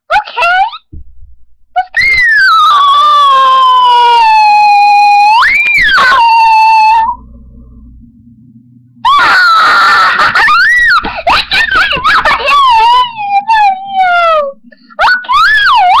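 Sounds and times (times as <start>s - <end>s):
low hum: 0.8s - 16.0s
child squealing and screaming: 2.0s - 7.2s, 9.1s - 16.0s.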